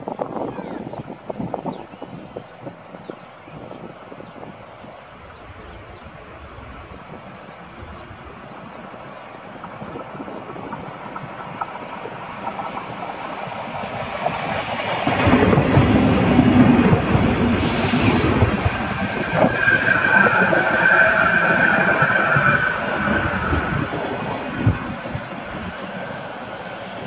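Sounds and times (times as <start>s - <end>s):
train wheels clattering over rails: 9.4s - 27.0s
high brake squeal: 17.6s - 24.2s.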